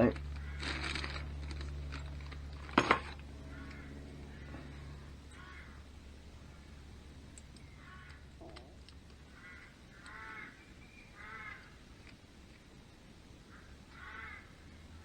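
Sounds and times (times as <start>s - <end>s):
faint harsh bird calls: 3.2s - 12.0s, 13.4s - 15.0s.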